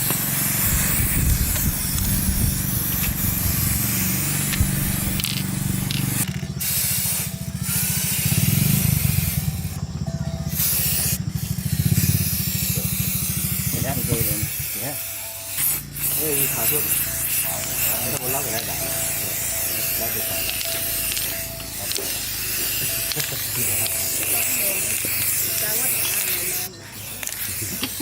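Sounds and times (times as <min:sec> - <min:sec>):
spray-like hiss of air: 0:00.0 - 0:09.7, 0:10.5 - 0:28.0
low machine rumble: 0:00.0 - 0:14.5.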